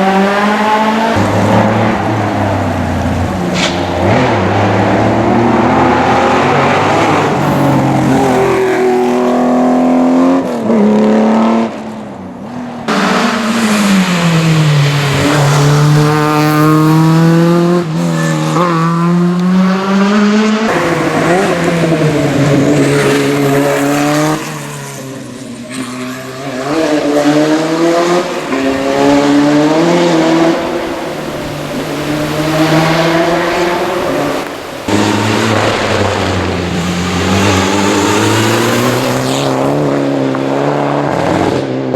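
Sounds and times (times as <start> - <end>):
rally car engines revving: 0.0 - 41.9.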